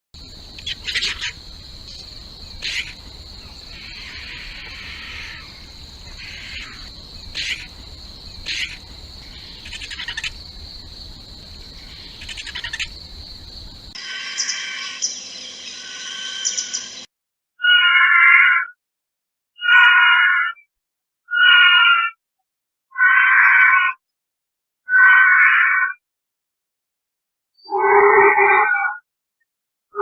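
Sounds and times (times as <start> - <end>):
high insect drone: 0.2 - 17.1
vultures harsh calls: 0.5 - 10.6, 11.4 - 13.0, 14.0 - 15.1, 15.7 - 17.0, 17.6 - 18.7, 19.6 - 20.6, 21.3 - 22.2, 23.0 - 24.0, 24.9 - 26.0.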